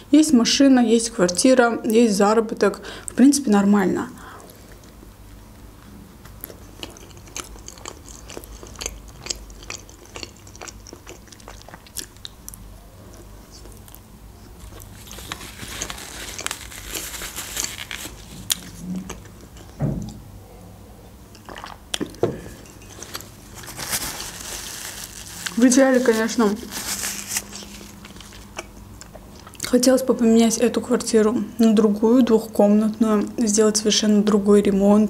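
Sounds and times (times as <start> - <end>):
crisp chewing crunches: 6.3 - 19.8, 22.9 - 29.7.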